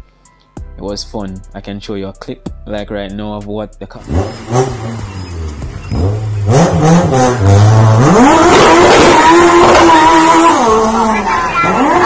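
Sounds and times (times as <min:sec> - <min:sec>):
car engine revving: 0:04.0 - 0:12.0.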